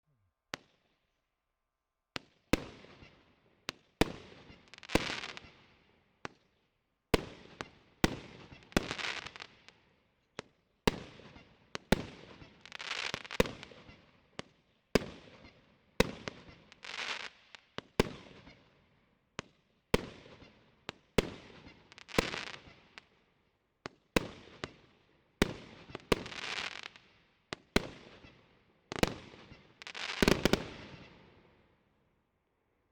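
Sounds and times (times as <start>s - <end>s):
fireworks launching and bursting: 28.9s - 31.2s.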